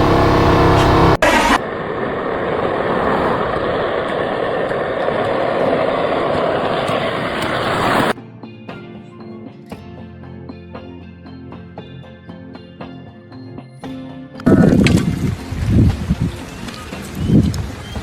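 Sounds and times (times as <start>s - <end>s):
steady machinery noise: 0.0s - 8.2s.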